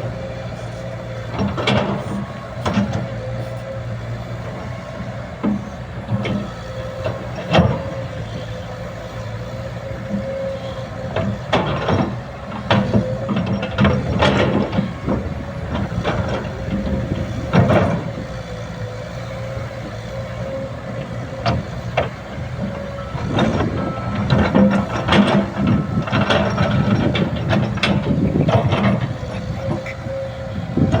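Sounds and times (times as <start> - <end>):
excavator diesel engine: 0.0 - 31.0
metal clanks and knocks: 1.2 - 3.2, 10.0 - 18.6, 19.6 - 31.0.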